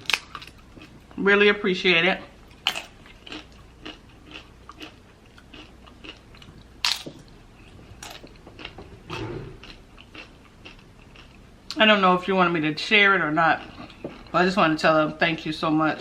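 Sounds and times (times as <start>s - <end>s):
person chewing crunchy food: 0.0s - 1.2s, 2.4s - 11.8s, 13.5s - 14.4s.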